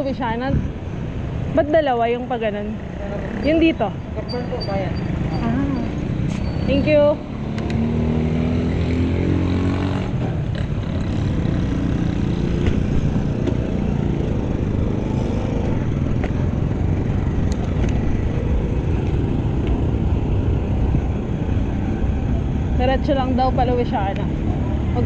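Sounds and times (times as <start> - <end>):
wind and road noise: 0.0 - 25.0
motor vehicle passing: 2.2 - 25.0.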